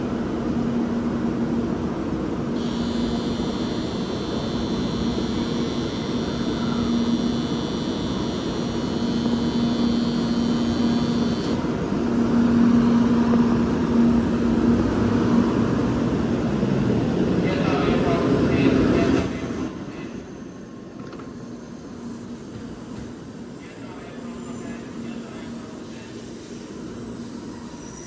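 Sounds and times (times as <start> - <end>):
train humming: 10.5 - 28.0
platform departure bell ringing: 16.5 - 28.0.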